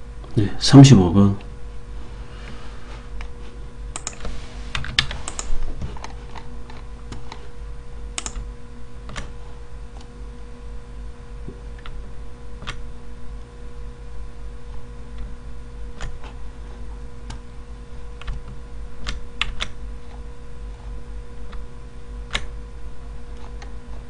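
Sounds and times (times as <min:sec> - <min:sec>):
steady low hum: 0:00.0 - 0:24.0
keyboard keystrokes and clicks: 0:04.0 - 0:07.4, 0:08.2 - 0:08.5, 0:12.6 - 0:12.8, 0:16.0 - 0:16.2, 0:18.2 - 0:20.2.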